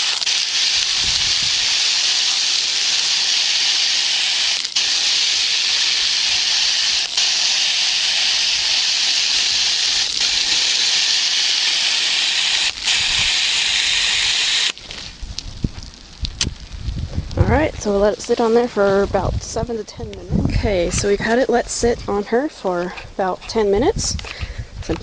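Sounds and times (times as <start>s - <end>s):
hose sprayer hissing: 0.0s - 15.3s.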